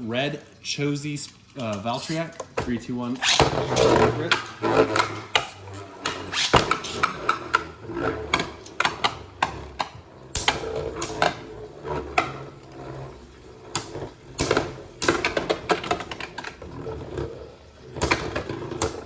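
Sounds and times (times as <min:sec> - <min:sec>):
spinning tops clacking together: 0:03.2 - 0:11.6.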